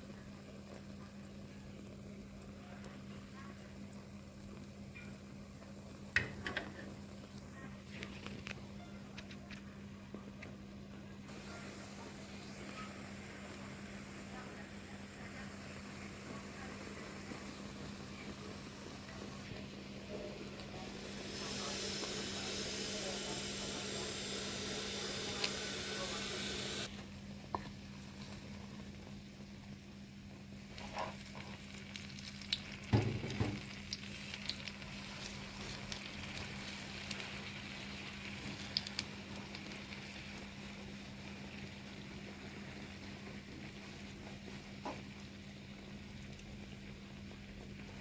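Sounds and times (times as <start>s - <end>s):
food sizzling in a pan: 0.0s - 8.3s, 11.3s - 48.0s.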